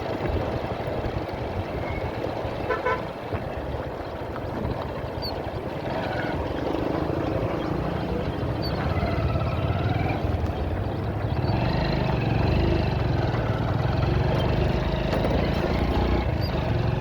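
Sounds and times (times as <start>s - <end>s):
road noise rumble: 0.0s - 17.0s
vehicle horn honking: 2.7s - 3.1s.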